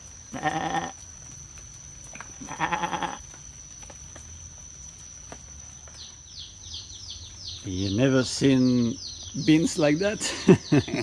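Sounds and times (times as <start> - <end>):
goat or sheep bleating: 0.3 - 1.0, 2.4 - 3.2.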